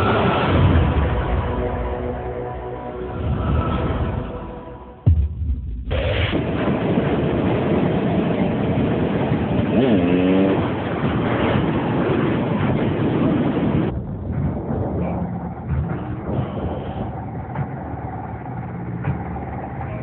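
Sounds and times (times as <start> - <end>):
engine rev: 5.9 - 20.0
motorbike and vehicle engines running: 6.4 - 20.0.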